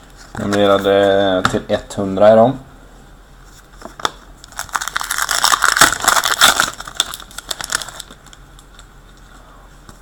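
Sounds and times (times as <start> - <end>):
plastic wrapper crinkling: 4.0 - 8.8.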